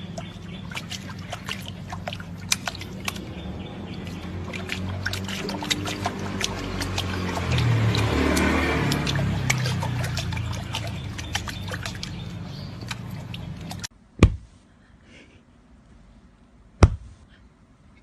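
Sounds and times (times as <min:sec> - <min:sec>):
water splashing and dripping: 0:00.0 - 0:13.9
sharp knocks: 0:14.2 - 0:14.5, 0:16.8 - 0:17.2.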